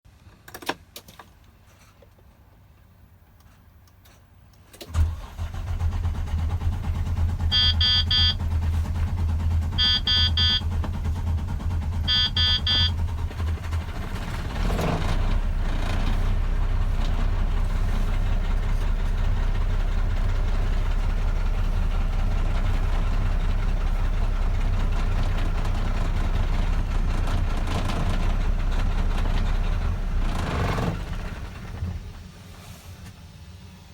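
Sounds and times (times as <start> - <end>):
diesel engine cranking and idling: 4.2 - 33.9
warning beeper bursts: 7.5 - 8.5, 9.7 - 10.7, 12.0 - 13.0.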